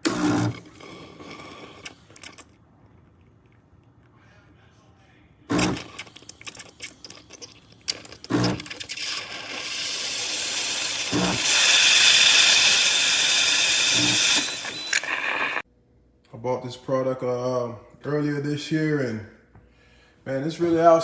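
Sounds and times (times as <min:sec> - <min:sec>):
steam wand hissing: 0:08.4 - 0:15.6
clicks: 0:14.0 - 0:15.6.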